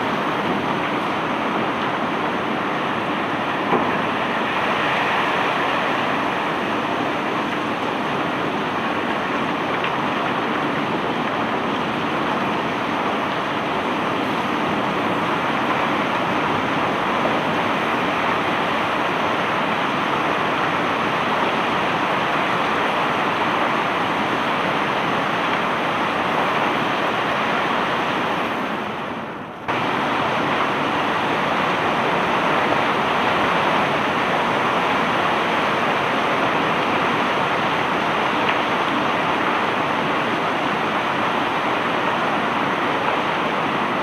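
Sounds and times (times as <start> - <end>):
bulk cargo pouring rush: 0.0 - 44.0.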